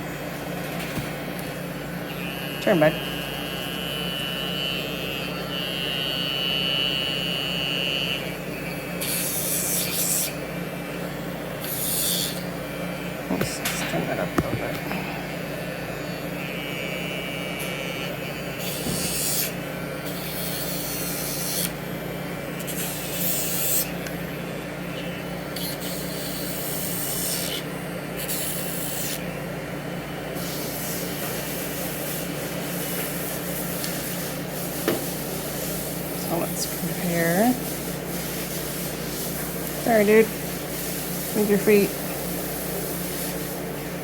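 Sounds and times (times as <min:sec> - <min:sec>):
nail grinder motor hum: 0:01.0 - 0:10.5, 0:11.5 - 0:21.8, 0:22.6 - 0:24.1, 0:25.5 - 0:29.3.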